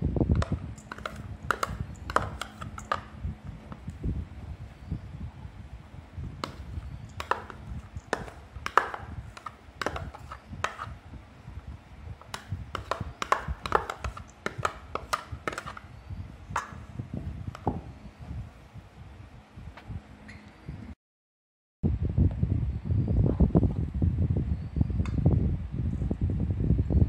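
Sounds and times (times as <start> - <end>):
faint steady hum: 0.0 - 21.0
kitchenware tapping a steel bowl: 0.4 - 3.2, 6.4 - 10.9, 12.2 - 15.8, 16.6 - 16.8.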